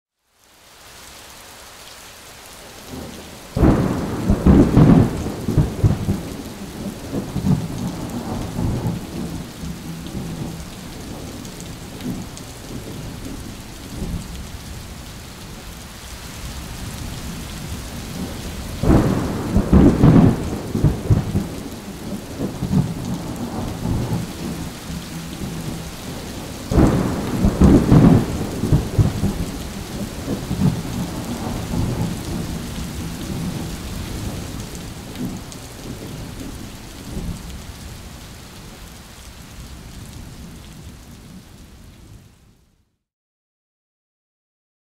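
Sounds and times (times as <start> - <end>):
steady rain: 0.1 - 43.0
thunder peals: 3.6 - 13.2, 17.6 - 36.3.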